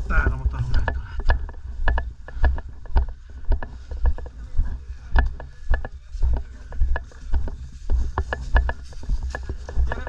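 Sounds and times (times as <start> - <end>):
footsteps thumping: 0.0 - 4.3
gear clicking and rattling: 0.3 - 10.0.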